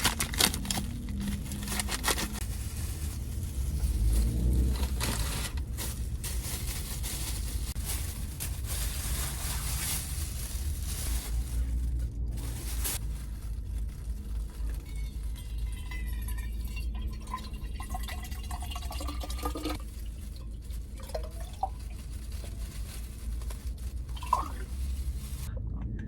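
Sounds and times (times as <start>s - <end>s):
liquid pouring into a container: 15.3s - 22.0s, 24.1s - 24.7s
steady low hum: 19.8s - 26.0s.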